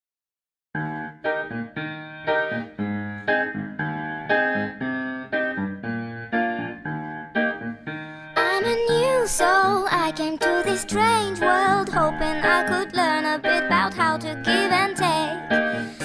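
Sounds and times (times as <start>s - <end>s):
piano playing chords: 0.8s - 16.0s.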